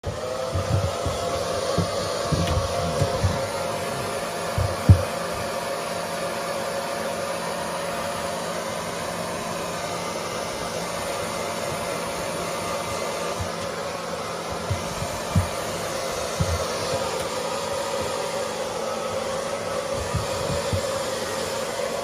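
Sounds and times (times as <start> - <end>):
low bumps: 0.0 - 5.2
hair dryer blowing: 0.0 - 22.0.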